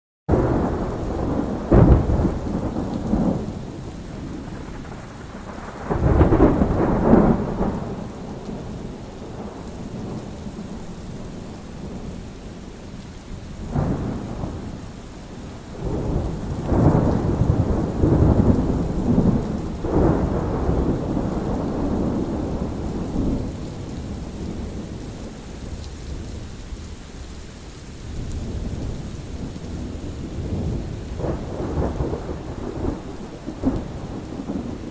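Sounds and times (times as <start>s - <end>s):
thunder rolling: 0.3s - 10.2s, 15.8s - 25.0s, 28.4s - 34.9s
steady rain: 0.3s - 34.9s.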